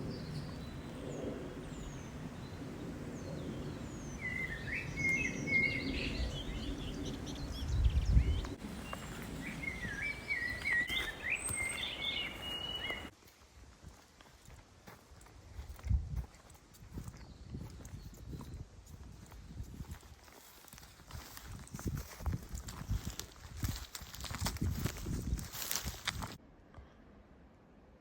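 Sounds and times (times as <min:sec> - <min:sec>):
small birds warbling: 0:00.0 - 0:13.1.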